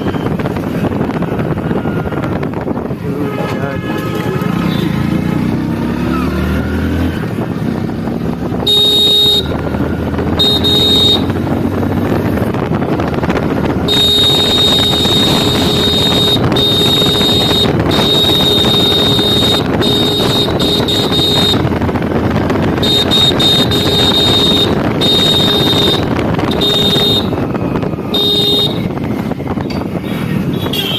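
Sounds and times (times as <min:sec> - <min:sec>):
motorcycle engine running: 0:06.7 - 0:30.9
motorcycle horn sounding: 0:08.5 - 0:11.4, 0:13.8 - 0:21.9, 0:22.6 - 0:29.0, 0:30.4 - 0:30.9.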